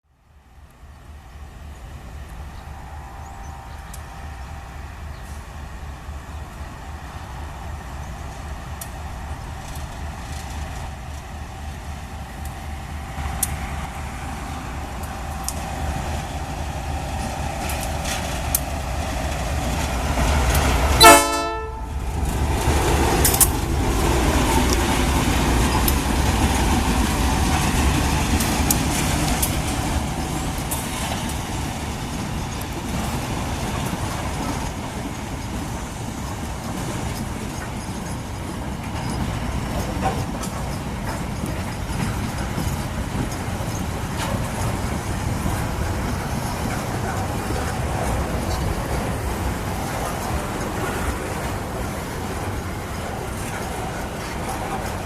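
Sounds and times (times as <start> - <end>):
diesel train rumbling: 0.1 - 55.0
train rattling past: 0.4 - 55.0
train horn blast: 2.7 - 5.4, 21.0 - 21.9.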